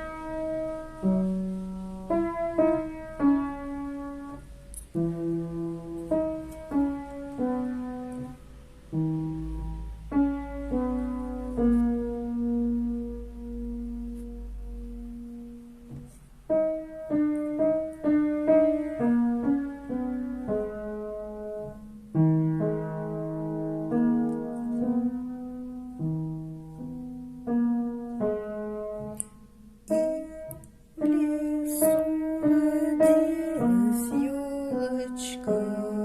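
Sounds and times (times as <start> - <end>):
piano melody: 0.0 - 36.0.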